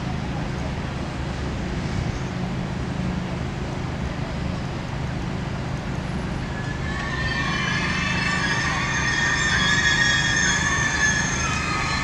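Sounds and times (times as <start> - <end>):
passenger train rumbling: 0.0 - 12.0
metallic wheel squeal: 6.3 - 12.0.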